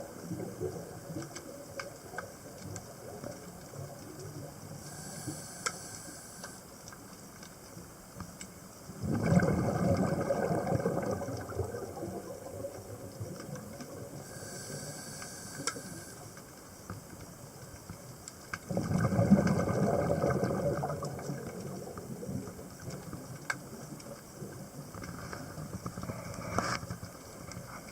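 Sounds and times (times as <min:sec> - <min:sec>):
exhaled bubbles burbling underwater: 0:00.0 - 0:04.9, 0:08.9 - 0:14.4, 0:18.6 - 0:26.1
regulator inhalation hiss: 0:04.8 - 0:06.8, 0:14.2 - 0:16.4.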